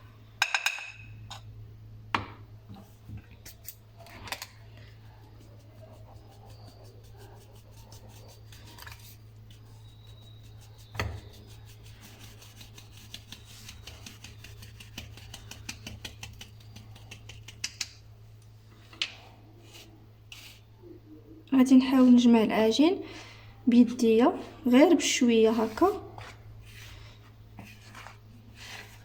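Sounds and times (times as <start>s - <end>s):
utensil stirring cookie dough: 2.7s - 20.7s, 24.0s - 29.0s.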